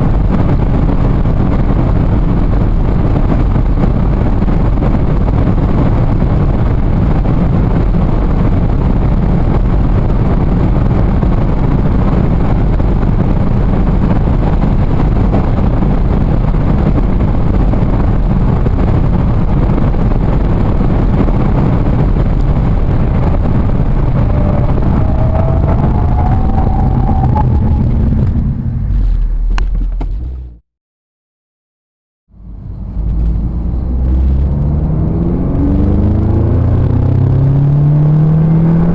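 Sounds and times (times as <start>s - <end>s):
car engine rumble at speed: 0.0s - 30.6s, 32.3s - 38.9s
wind and tyre noise: 0.0s - 30.6s, 32.3s - 38.9s
faint rising whine: 22.6s - 29.6s.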